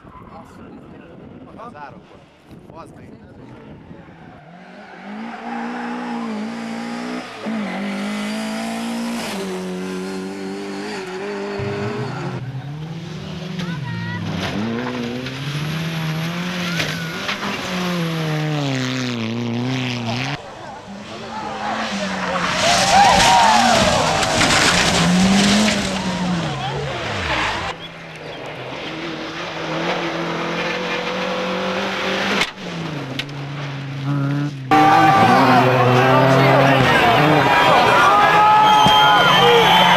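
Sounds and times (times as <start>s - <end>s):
rally car engine at high revs: 3.6s - 39.9s
rally car engine pitch falling: 29.8s - 39.9s.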